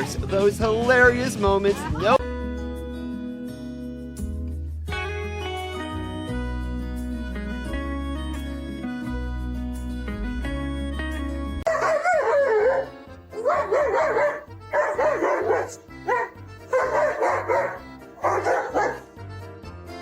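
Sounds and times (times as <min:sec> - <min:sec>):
background music: 0:00.0 - 0:20.0
dog yowling: 0:11.7 - 0:19.1.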